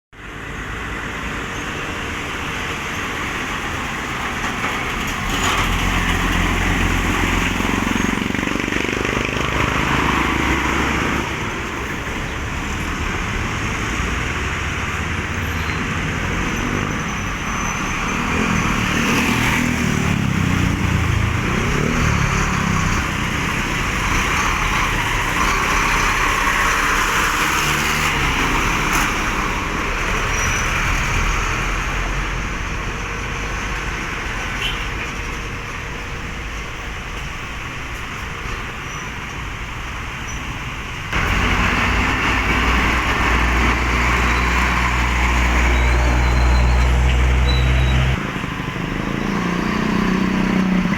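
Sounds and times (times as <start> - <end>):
trucks passing: 0.2 - 50.9.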